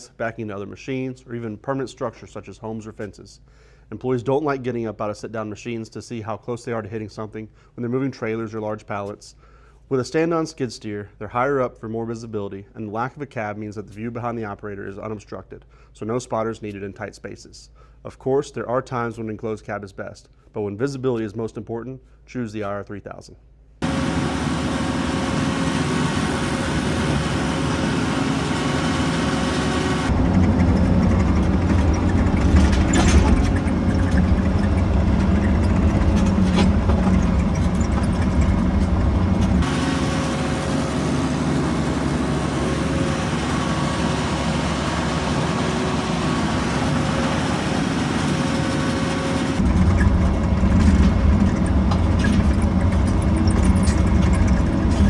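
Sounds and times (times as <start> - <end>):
skid steer engine running: 23.8 - 55.0.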